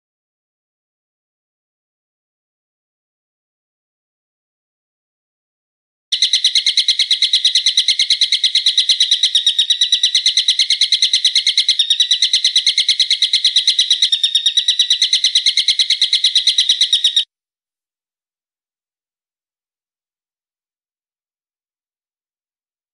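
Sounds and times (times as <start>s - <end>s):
songbird trilling: 6.1s - 17.2s.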